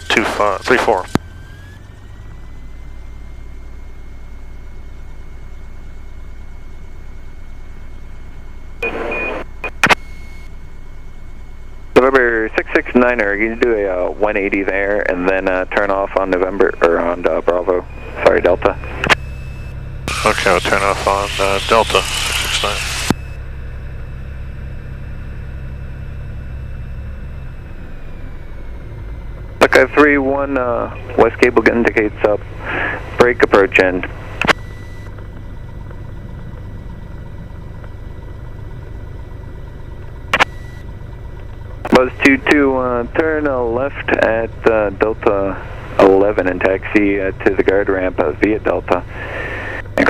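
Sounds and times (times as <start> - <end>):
radio noise burst: 0.0 - 1.2, 8.8 - 10.5, 12.0 - 19.3, 20.1 - 23.4, 29.6 - 35.1, 41.8 - 50.0
aircraft engine hum: 0.0 - 50.0
faint steady whine: 0.0 - 50.0
sharp clicks: 34.4 - 35.5.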